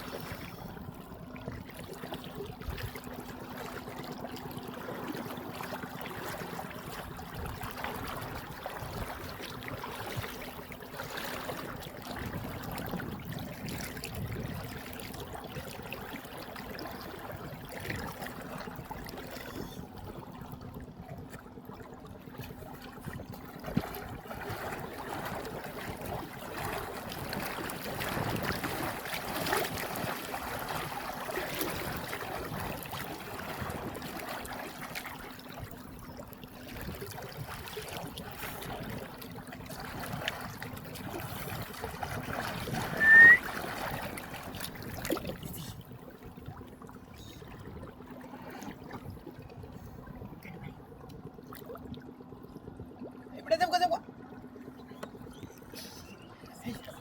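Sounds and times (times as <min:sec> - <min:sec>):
river water splashing: 0:00.0 - 0:50.6.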